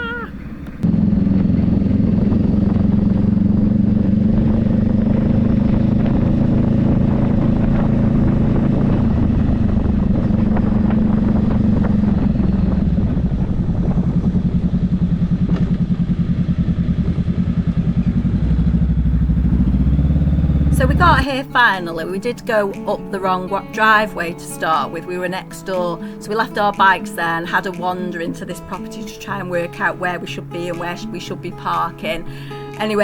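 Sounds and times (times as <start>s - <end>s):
motorcycle engine running: 0.5s - 26.8s.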